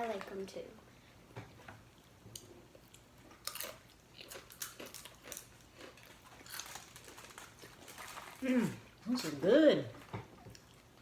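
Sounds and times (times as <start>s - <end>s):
chewing crisp chips: 2.4s - 9.4s.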